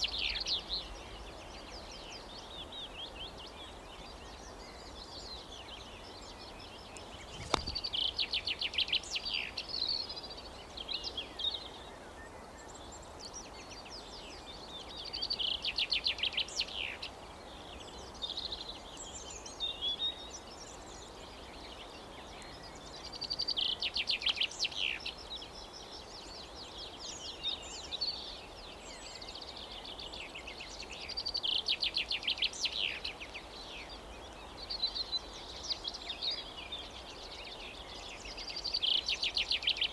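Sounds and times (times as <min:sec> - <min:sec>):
songbird singing trills: 0:00.0 - 0:10.2
sharp click: 0:07.0 - 0:07.8.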